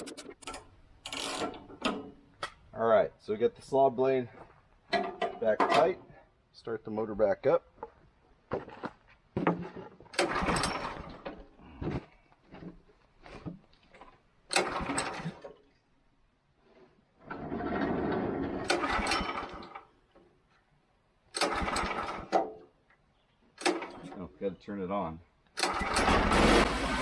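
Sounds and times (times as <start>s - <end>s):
engine cranking without starting: 0.0s - 1.8s, 10.2s - 11.5s, 14.5s - 15.6s, 17.3s - 19.9s, 21.3s - 22.5s, 25.6s - 27.0s.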